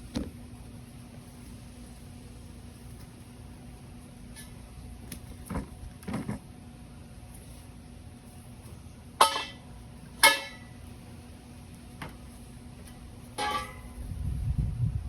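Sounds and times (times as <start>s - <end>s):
steady low hum: 0.0s - 15.0s
metallic rattle: 13.4s - 14.1s.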